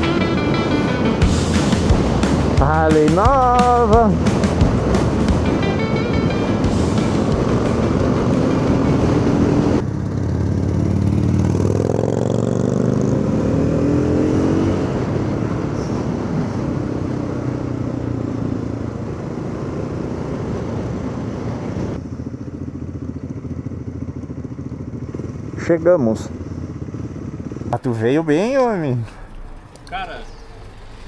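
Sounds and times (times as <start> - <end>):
wind rush: 0.0 - 9.8
motorcycle engine accelerating: 0.0 - 31.0.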